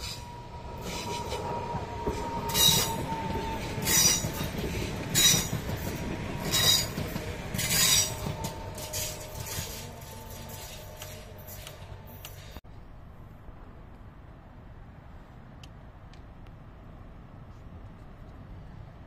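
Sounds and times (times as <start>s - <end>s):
train wheels rumbling on rails: 0.0s - 12.7s.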